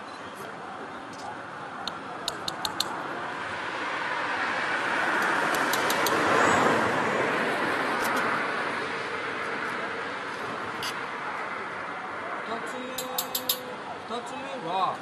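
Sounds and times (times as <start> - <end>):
light sharp clicks: 1.1 - 3.0, 5.2 - 6.2
road vehicle passing: 1.6 - 14.1.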